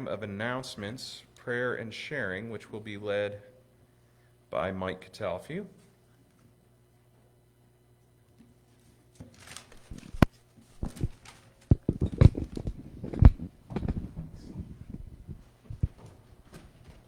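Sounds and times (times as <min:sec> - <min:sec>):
knocks thumps and rustling: 0:09.2 - 0:17.0.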